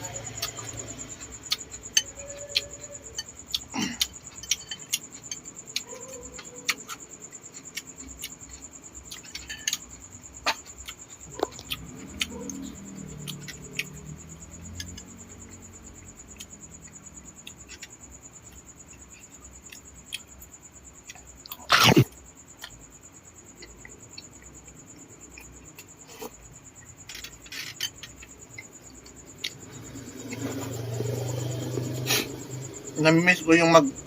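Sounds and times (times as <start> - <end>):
person chewing: 0.2 - 2.9, 3.5 - 9.9, 10.5 - 14.0, 21.0 - 22.8.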